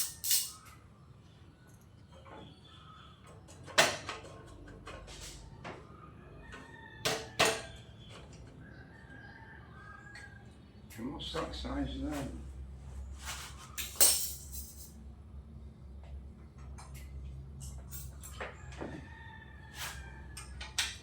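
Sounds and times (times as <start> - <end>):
hand tools clicking and knocking: 0.0 - 0.6.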